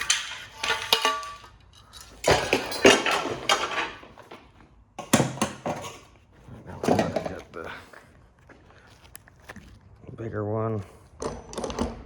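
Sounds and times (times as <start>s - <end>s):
steel machine parts clanking: 0.0s - 4.3s.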